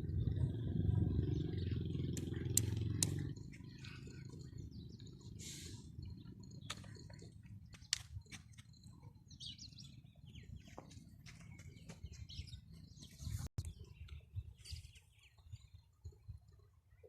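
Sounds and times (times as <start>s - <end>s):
low rumble: 0.0s - 5.2s
small birds chirping: 0.0s - 17.0s
sharp clicks: 2.2s - 3.3s.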